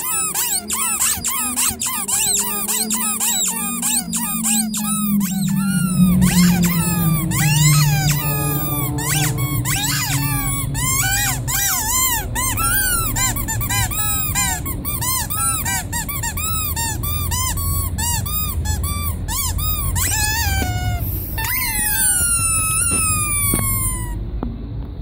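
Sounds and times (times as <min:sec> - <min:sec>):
squeaky toy squeaking: 0:00.0 - 0:24.2.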